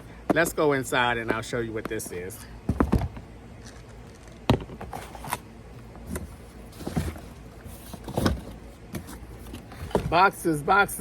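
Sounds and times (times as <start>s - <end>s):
rustling: 6.0s - 10.2s.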